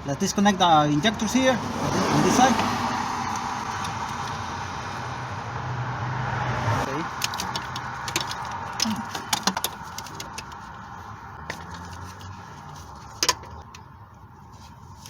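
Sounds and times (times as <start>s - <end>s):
plastic connectors clicking and rattling: 7.1s - 10.8s.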